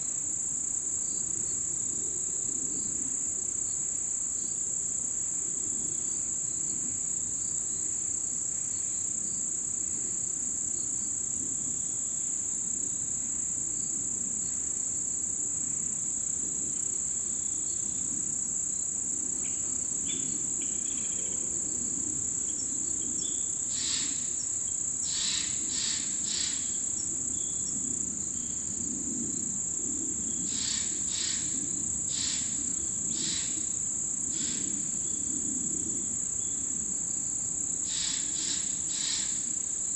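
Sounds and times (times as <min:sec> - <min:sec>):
insects trilling: 0:00.1 - 0:39.9
sharp insect chirps: 0:18.7 - 0:39.9.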